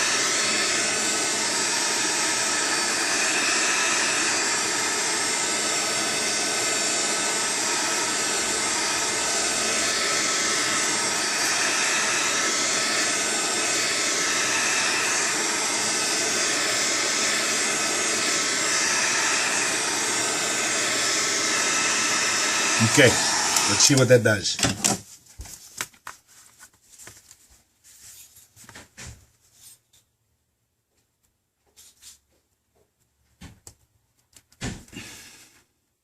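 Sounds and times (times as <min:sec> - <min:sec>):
heat gun blowing air: 0:00.0 - 0:25.0, 0:34.9 - 0:35.5.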